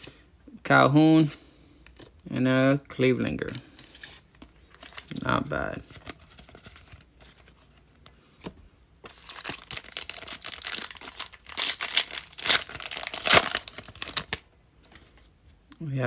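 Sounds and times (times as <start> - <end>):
wrapper tearing and crinkling: 9.1 - 14.4.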